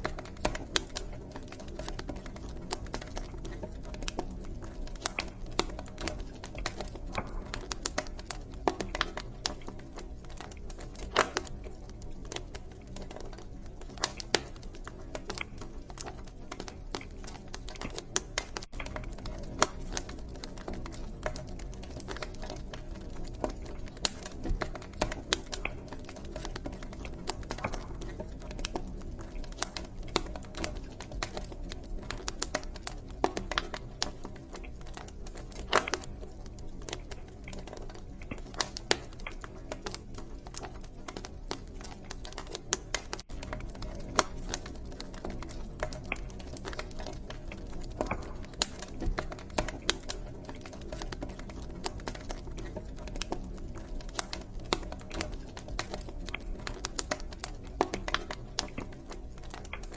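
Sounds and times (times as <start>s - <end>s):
fire crackling: 0.0s - 59.9s
low rumble of flames: 0.0s - 59.9s.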